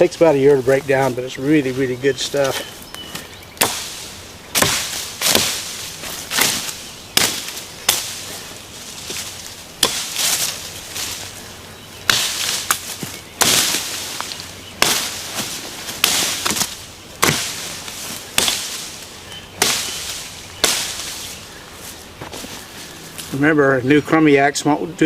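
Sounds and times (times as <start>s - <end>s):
branches rustling: 0.0s - 24.5s
axe chopping branches: 2.4s - 11.4s, 12.0s - 21.4s.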